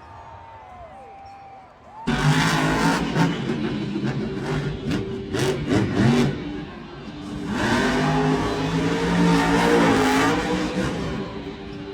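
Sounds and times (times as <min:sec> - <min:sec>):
monster truck engine revving: 0:02.1 - 0:11.9.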